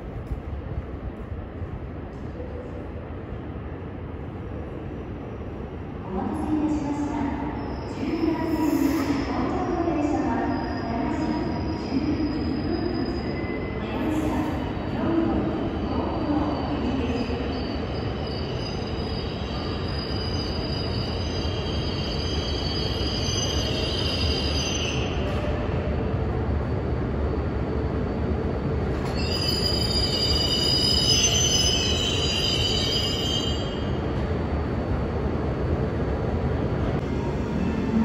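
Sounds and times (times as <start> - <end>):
train rumbling: 0.0 - 38.0
train running gear squealing: 15.8 - 25.6, 29.0 - 33.9.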